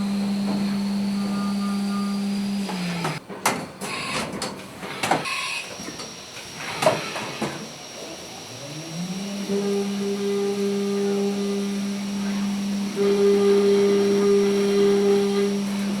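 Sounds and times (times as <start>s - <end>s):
milling machine whine: 0.0s - 3.2s, 4.9s - 16.0s
machine clunks and clicks: 2.7s - 7.6s.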